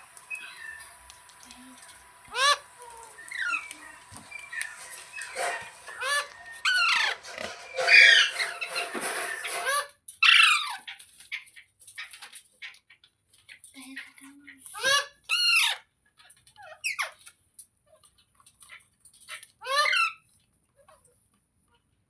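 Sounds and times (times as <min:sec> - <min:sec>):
parrot squawking: 0:00.3 - 0:01.0, 0:01.9 - 0:11.5, 0:14.7 - 0:15.9, 0:19.6 - 0:20.2.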